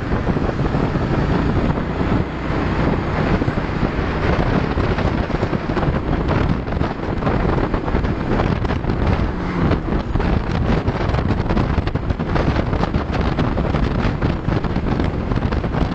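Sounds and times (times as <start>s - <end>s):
motor scooter and road noise: 0.0s - 15.9s
wind buffeting microphone: 0.0s - 15.9s.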